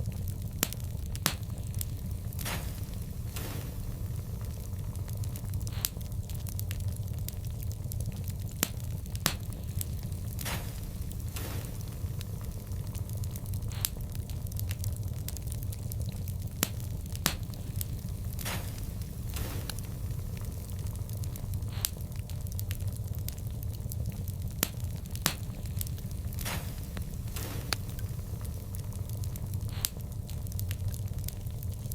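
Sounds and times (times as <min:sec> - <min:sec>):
sharp pops of fire: 0:00.0 - 0:31.9
soft hissing of fire: 0:00.0 - 0:31.9
wood fire crackling: 0:00.0 - 0:31.9.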